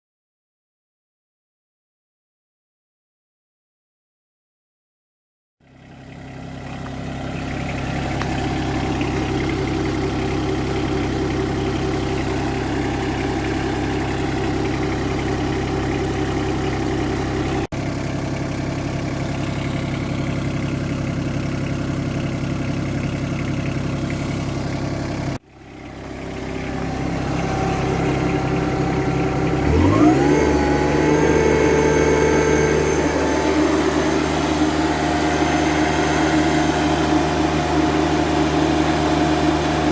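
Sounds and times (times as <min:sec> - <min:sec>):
tractor diesel engine idling and revving: 0:05.7 - 0:39.9.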